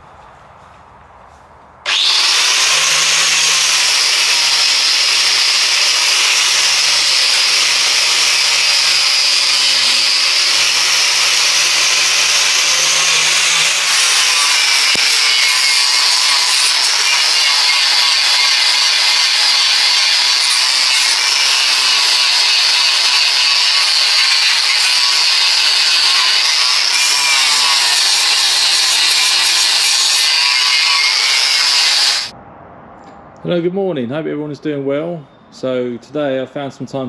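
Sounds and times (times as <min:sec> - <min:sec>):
power tool running on metal: 0:01.9 - 0:32.3.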